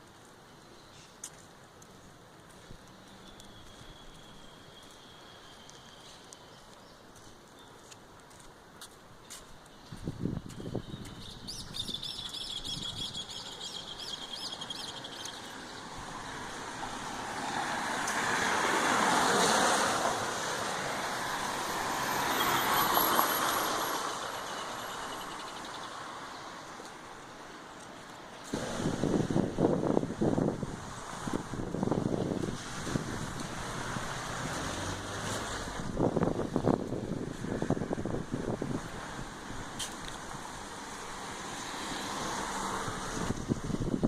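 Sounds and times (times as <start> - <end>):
road vehicles passing: 0.0 - 44.0
bird chirping: 10.8 - 15.9.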